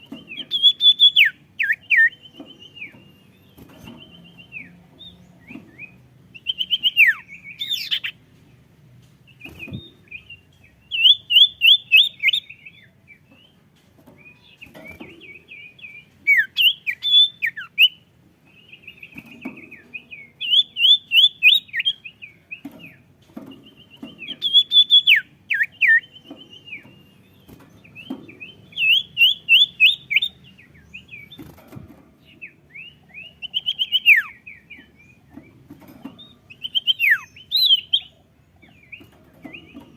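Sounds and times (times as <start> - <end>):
bird twittering: 0.0 - 8.2, 9.3 - 13.6, 14.3 - 31.5, 32.3 - 35.6, 36.2 - 39.9.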